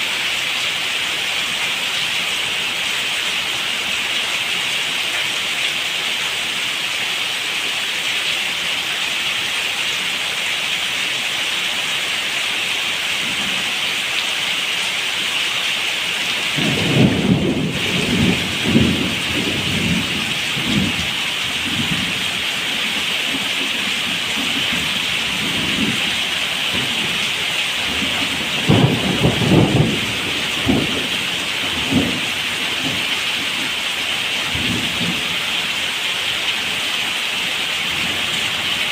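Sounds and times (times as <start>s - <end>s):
heavy rain hissing: 0.0s - 38.9s
thunder rumbling: 16.6s - 33.1s.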